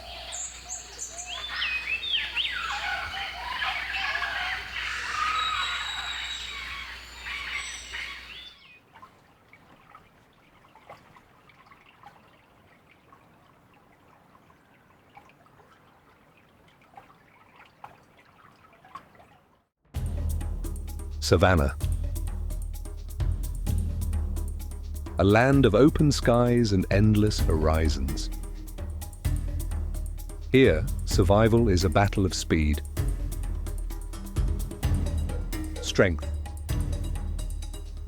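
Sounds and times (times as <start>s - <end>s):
birds chirping and whistling: 0.0s - 8.8s.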